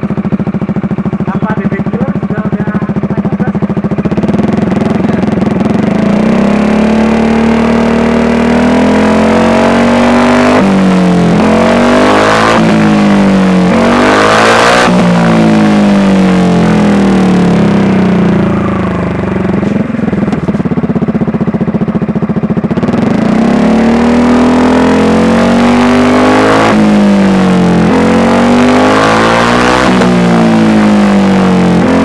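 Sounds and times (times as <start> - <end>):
scooter engine revving: 0.0 - 32.0.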